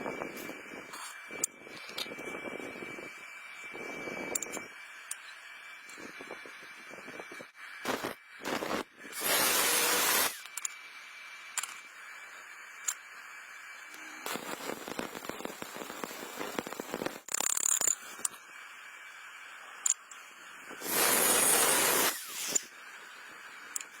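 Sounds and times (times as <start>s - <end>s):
welding arc crackling and hissing: 7.8s - 10.6s, 13.8s - 18.6s, 19.6s - 24.0s.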